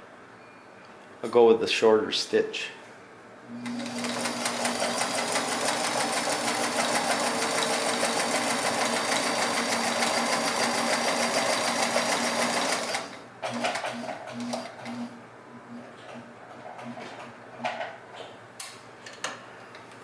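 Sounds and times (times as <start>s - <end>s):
sewing machine motor hum: 3.5s - 17.3s
sewing machine clattering: 3.8s - 14.5s.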